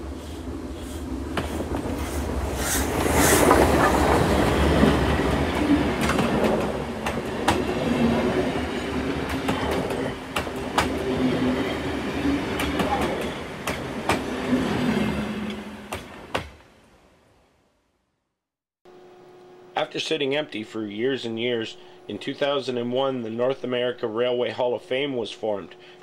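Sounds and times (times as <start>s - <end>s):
train rumbling on rails: 0.0s - 16.9s
wheels clicking over rail joints: 3.1s - 14.4s.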